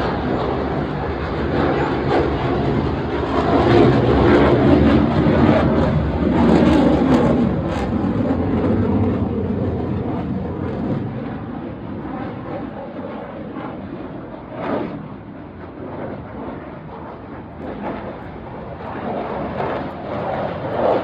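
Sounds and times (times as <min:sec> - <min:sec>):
airplane engine noise: 0:00.0 - 0:21.0.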